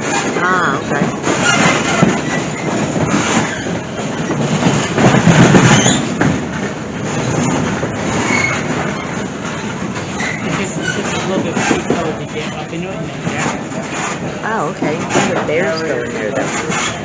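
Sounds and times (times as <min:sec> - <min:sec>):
high wheel squeal: 0:00.0 - 0:04.8, 0:05.5 - 0:06.2, 0:08.1 - 0:14.3
train wheels rumbling on rails: 0:00.0 - 0:17.0.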